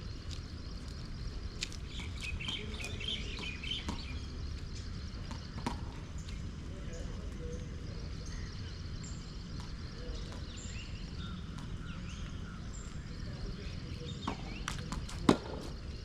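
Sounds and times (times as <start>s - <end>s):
low background noise: 0.0s - 16.0s
tennis ball bouncing and struck: 2.0s - 4.2s, 5.2s - 6.2s, 14.2s - 15.8s.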